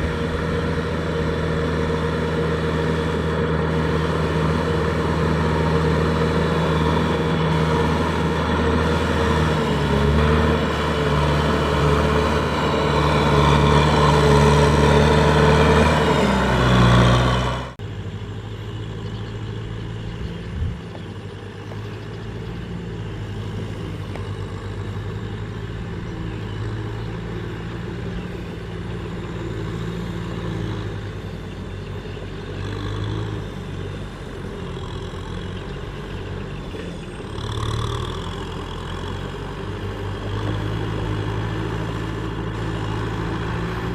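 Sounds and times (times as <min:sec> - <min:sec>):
quiet engine drone: 0:00.0 - 0:43.9
tractor diesel engine running: 0:00.0 - 0:43.9.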